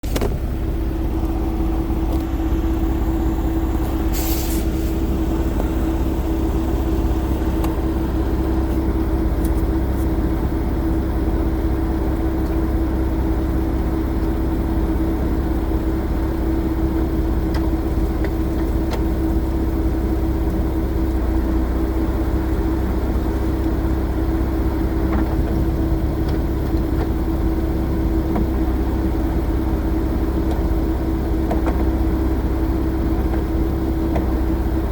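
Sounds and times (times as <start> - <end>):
car engine running: 0.0 - 34.9.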